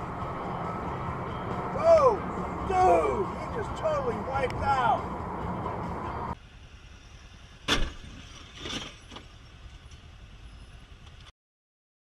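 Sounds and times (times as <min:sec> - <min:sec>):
vehicle road and engine rumble: 0:00.0 - 0:11.3
loud sharp bang: 0:07.6 - 0:08.2.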